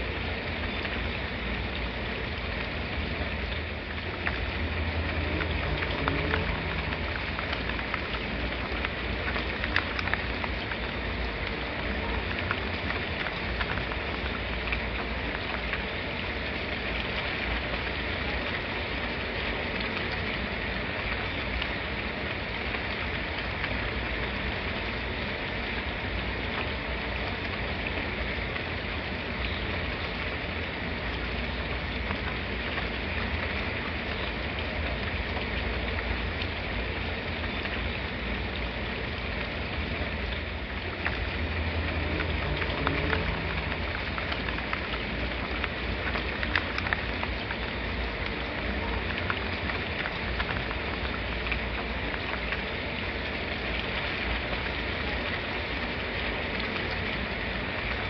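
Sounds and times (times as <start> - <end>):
sharp drip ticks: 0.0 - 58.0
steady rain falling: 0.0 - 58.0.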